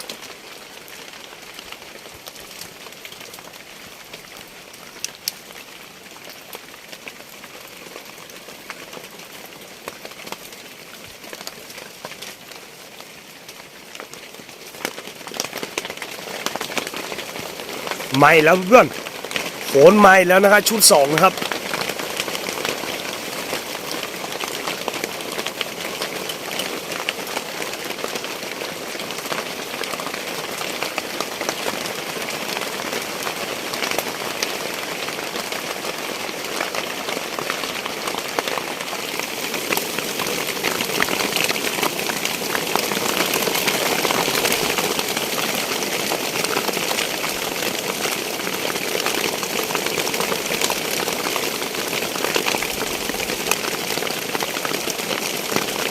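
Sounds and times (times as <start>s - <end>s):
heavy rain on roof: 0.0s - 55.9s.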